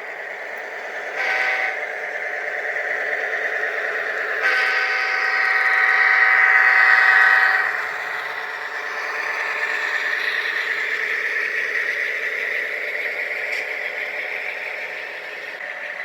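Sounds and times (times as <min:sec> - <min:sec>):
locomotive running sound: 0:00.0 - 0:16.0
model locomotive horn blast: 0:01.1 - 0:01.9, 0:04.3 - 0:05.5.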